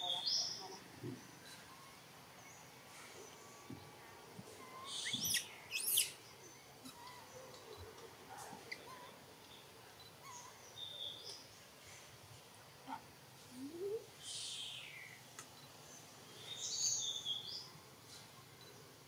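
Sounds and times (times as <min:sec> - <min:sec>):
bird chirps: 0:04.6 - 0:07.8
shrill sweeping bird calls: 0:04.8 - 0:06.2.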